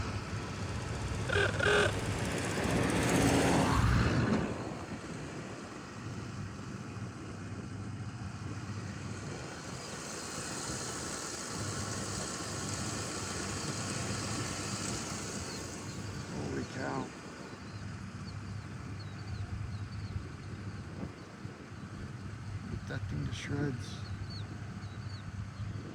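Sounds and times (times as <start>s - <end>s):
vehicle road and engine noise: 0.0s - 25.9s.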